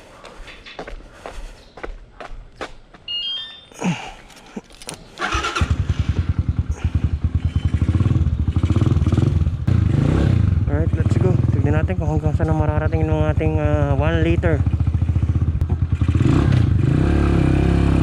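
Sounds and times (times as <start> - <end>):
rising run of beeps: 3.1 - 3.8
motorcycle engine starting and idling: 4.7 - 18.0.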